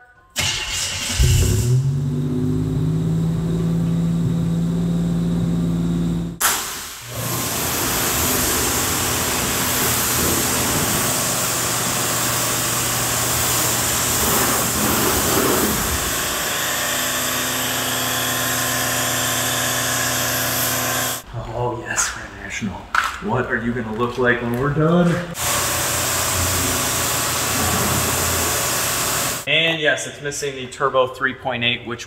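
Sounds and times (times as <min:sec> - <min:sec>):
car engine idling: 0:00.7 - 0:06.4
low hum: 0:01.1 - 0:06.4
pressure washer spraying water: 0:03.5 - 0:21.2, 0:25.4 - 0:29.5.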